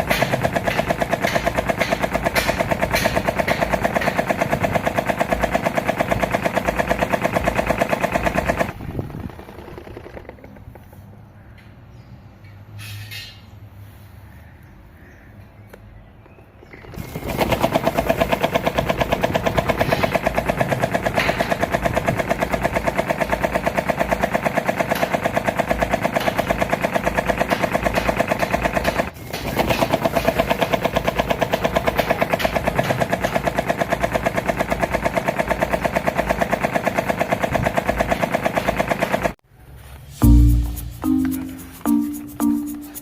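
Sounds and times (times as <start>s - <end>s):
electric fan clattering: 16.9s - 39.4s.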